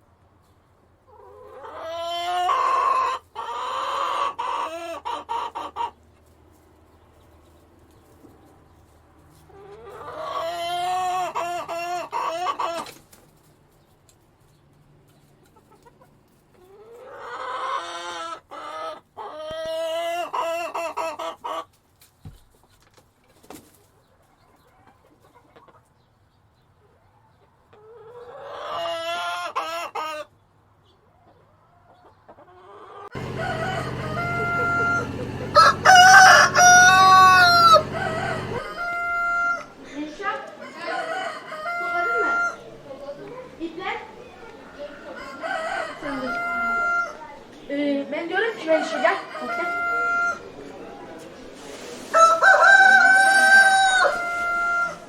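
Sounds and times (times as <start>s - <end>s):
rooster crowing: 33.1s - 39.8s, 40.6s - 42.9s, 44.3s - 47.4s, 48.6s - 50.6s, 52.1s - 55.0s.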